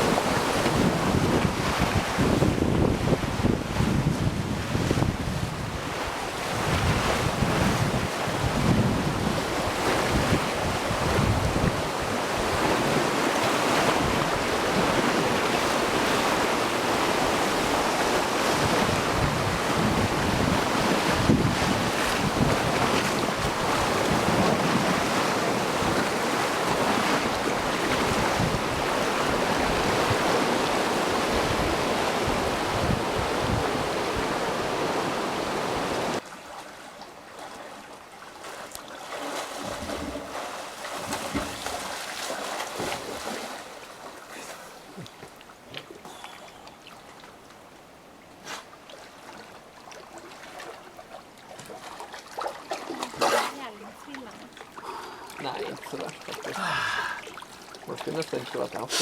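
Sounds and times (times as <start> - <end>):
gusty wind on microphone: 0.0 - 36.2.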